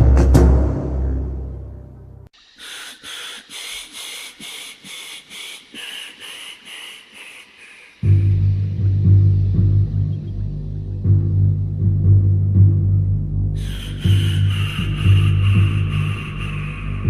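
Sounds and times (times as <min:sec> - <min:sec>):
animal short raspy calls: 0:02.4 - 0:08.3, 0:13.6 - 0:17.0.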